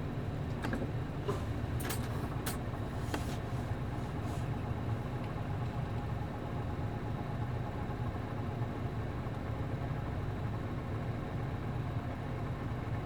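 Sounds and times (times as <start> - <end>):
bus diesel engine humming: 0.0 - 6.0.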